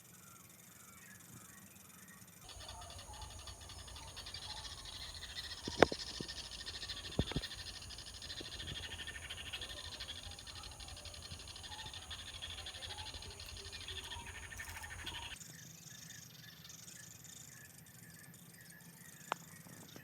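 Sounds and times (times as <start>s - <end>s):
fast-pulsing high buzz: 2.5s - 15.4s.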